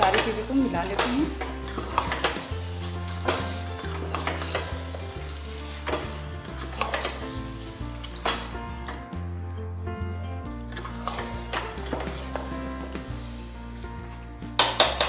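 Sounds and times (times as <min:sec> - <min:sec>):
spatula scraping and knocking pot: 0:00.0 - 0:09.3, 0:10.4 - 0:13.2
meat sizzling in a metal pot: 0:00.0 - 0:15.0
soft background music: 0:00.0 - 0:15.0.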